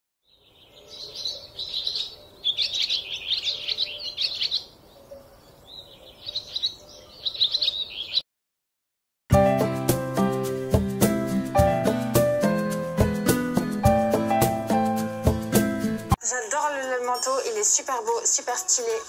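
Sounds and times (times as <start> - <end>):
birds chirping in high trills: 0.2 - 8.2.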